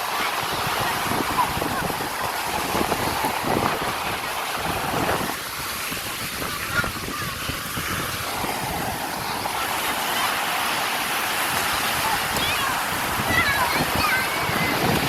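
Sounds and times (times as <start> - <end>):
rushing water: 0.0 - 15.0
wind buffeting microphone: 0.0 - 15.0.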